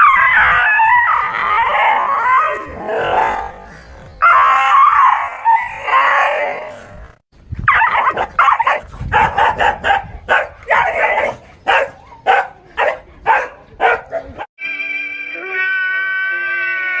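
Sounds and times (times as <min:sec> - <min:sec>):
dog howling: 0:00.0 - 0:03.6
dog barking and yelping: 0:07.7 - 0:14.5.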